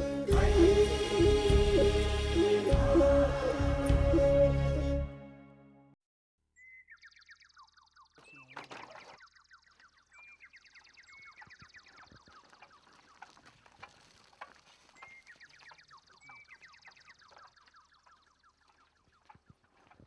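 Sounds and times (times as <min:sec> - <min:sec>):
descending bird trill: 0:06.6 - 0:13.4, 0:14.8 - 0:20.0
high bird warbling: 0:06.6 - 0:20.0.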